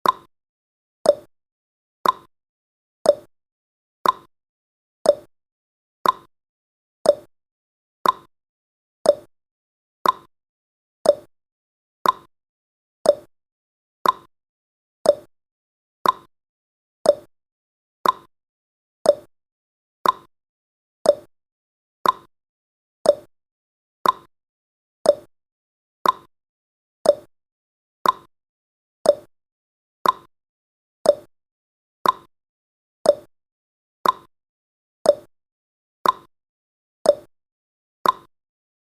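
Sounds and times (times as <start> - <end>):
timer ticking: 0.0 - 0.3, 1.0 - 1.3, 2.0 - 2.3, 3.1 - 3.3, 4.0 - 4.3, 5.1 - 5.3, 6.0 - 6.3, 7.0 - 7.3, 8.0 - 8.3, 9.0 - 9.3, 10.0 - 10.3, 11.0 - 11.3, 12.0 - 12.3, 13.0 - 13.3, 14.0 - 14.3, 15.0 - 15.3, 16.0 - 16.3, 17.0 - 17.3, 18.0 - 18.3, 19.0 - 19.3, 20.0 - 20.3, 21.0 - 21.3, 22.0 - 22.3, 23.0 - 23.3, 24.0 - 24.3, 25.0 - 25.3, 26.0 - 26.3, 27.0 - 27.3, 28.0 - 28.3, 29.0 - 29.3, 30.0 - 30.3, 31.0 - 31.3, 32.0 - 32.3, 33.0 - 33.3, 34.0 - 34.3, 35.1 - 35.3, 36.0 - 36.3, 37.1 - 37.3, 38.0 - 38.3.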